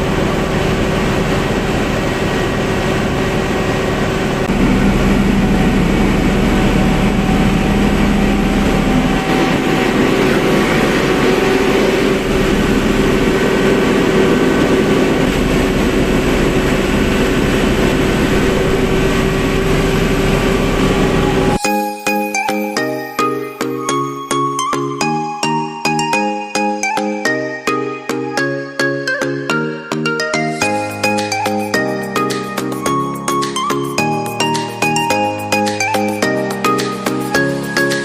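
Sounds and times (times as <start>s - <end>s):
generator engine humming: 0.0s - 21.6s, 30.6s - 38.0s.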